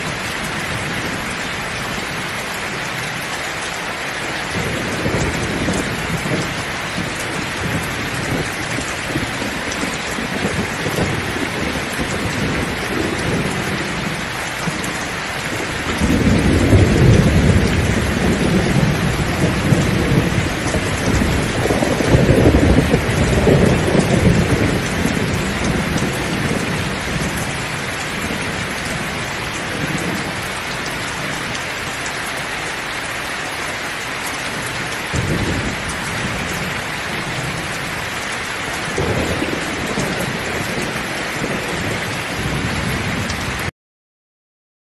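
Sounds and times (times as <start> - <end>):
heavy rain falling: 0.0 - 43.7
rolling thunder: 4.5 - 30.5, 34.5 - 43.7.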